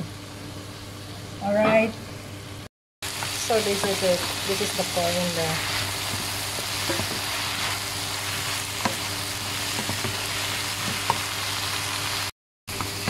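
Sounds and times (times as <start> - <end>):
vegetables sizzling in oil: 3.0 - 13.0.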